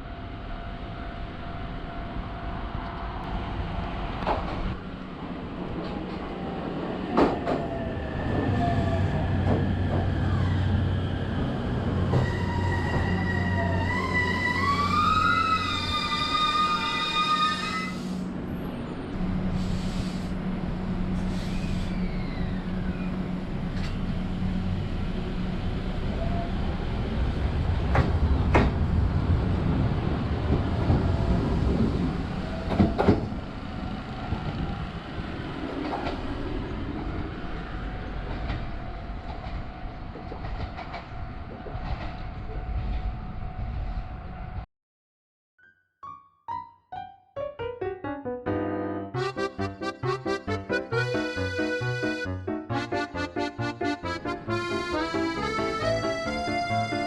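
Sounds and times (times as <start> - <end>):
train rumbling on rails: 0.0 - 44.7, 49.2 - 57.0
rail clicks: 27.8 - 29.0, 35.6 - 37.1, 38.1 - 43.0.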